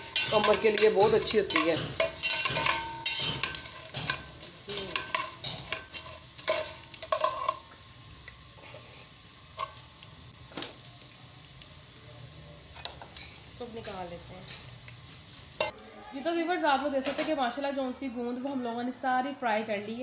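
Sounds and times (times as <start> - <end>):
metal spatula scraping a pot: 0.0 - 7.6
faint sizzle: 0.0 - 20.0.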